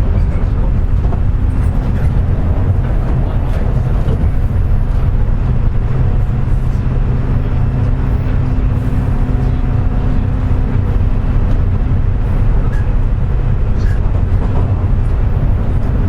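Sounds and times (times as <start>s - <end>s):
higher hum: 0.0s - 16.0s
low hum: 0.0s - 16.0s
train running low rumble: 0.0s - 16.0s.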